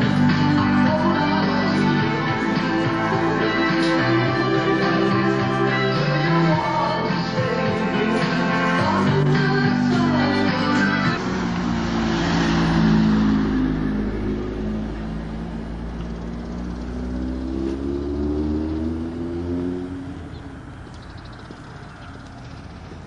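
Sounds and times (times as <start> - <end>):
rock music: 0.0 - 12.4
car engine running: 0.0 - 23.0.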